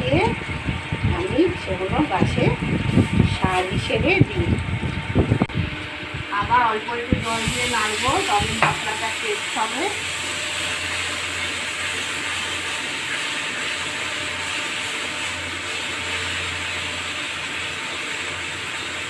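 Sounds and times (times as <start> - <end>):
paste sizzling in a wok: 7.2 - 19.0.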